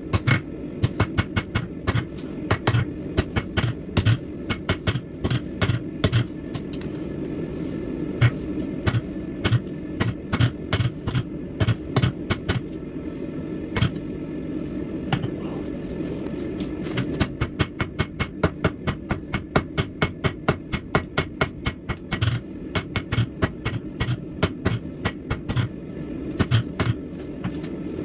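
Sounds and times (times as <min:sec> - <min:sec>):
low background roar: 0:00.0 - 0:28.0
hammer striking steel on anvil: 0:00.1 - 0:06.3, 0:08.8 - 0:12.6, 0:17.2 - 0:25.7, 0:26.4 - 0:27.0.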